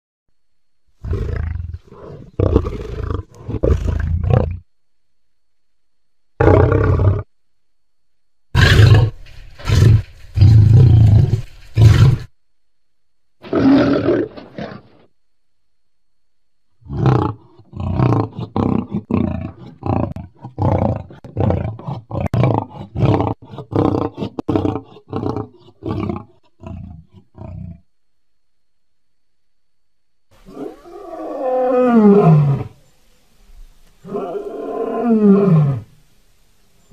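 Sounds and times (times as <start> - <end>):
lion roaring: 1.0 - 4.6, 6.4 - 7.3, 8.6 - 12.3, 13.4 - 15.1, 16.8 - 27.8, 30.4 - 32.8, 34.0 - 35.9.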